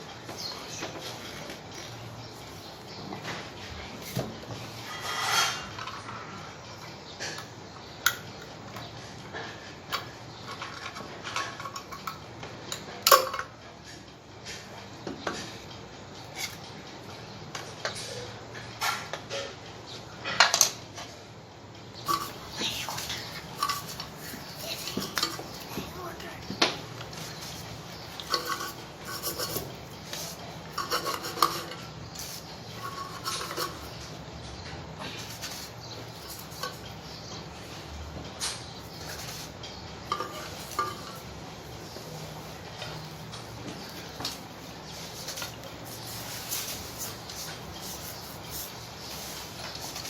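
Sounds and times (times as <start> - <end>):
scraping and rubbing on metal: 4.0 - 6.4, 22.0 - 26.5, 27.1 - 34.3, 35.1 - 37.8, 38.8 - 50.0.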